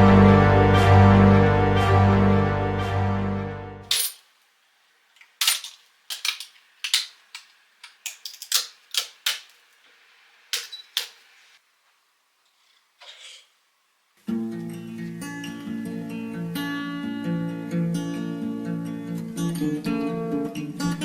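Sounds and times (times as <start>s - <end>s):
music: 0.0s - 3.9s, 14.2s - 21.0s.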